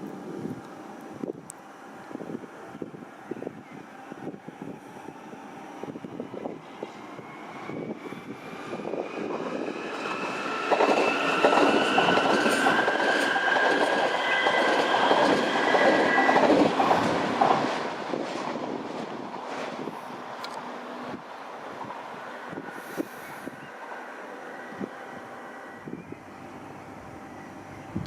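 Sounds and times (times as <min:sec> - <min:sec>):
train passing: 0:00.0 - 0:28.0
train wheels clattering: 0:08.8 - 0:19.8.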